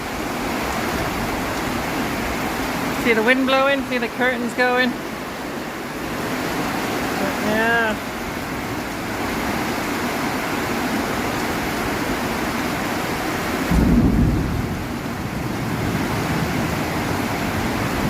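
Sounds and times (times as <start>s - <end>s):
heavy rain falling: 0.0s - 18.0s
thunder clap rumbling: 13.7s - 18.0s.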